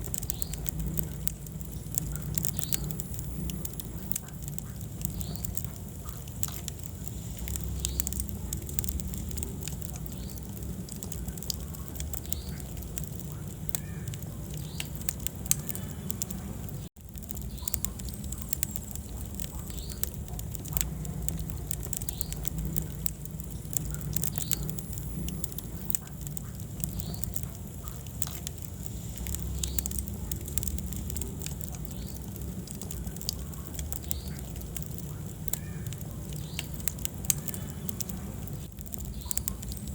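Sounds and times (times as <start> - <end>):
low fire rumble: 0.0 - 39.9
wood fire crackling and popping: 0.0 - 39.9.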